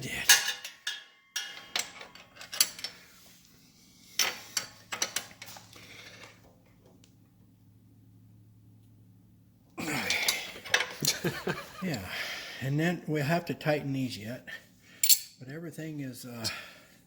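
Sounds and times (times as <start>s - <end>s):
wrench clinking on metal: 0.1s - 3.0s, 15.0s - 15.4s.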